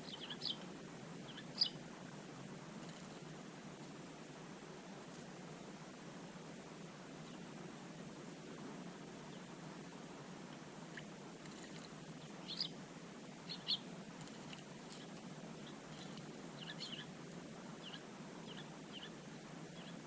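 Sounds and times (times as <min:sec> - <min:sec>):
small birds chirping: 0:00.0 - 0:02.1, 0:10.9 - 0:20.0
low background hum: 0:00.0 - 0:20.0.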